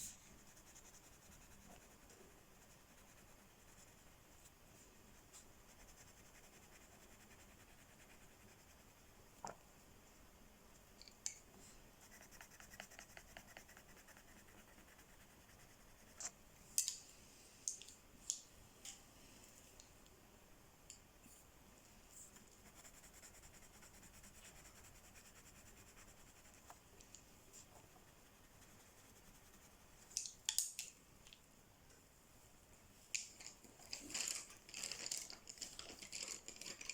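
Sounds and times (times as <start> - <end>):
coloring strokes on paper: 0.0 - 9.2, 11.9 - 16.4, 22.1 - 26.8, 27.5 - 30.1.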